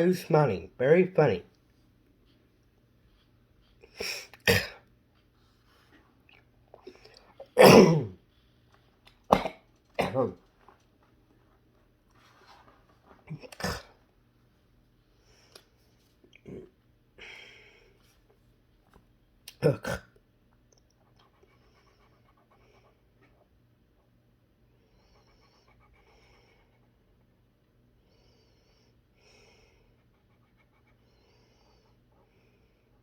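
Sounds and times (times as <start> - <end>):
man coughing and gagging: 4.0 - 4.8, 7.5 - 8.2, 9.3 - 10.4, 19.5 - 20.1.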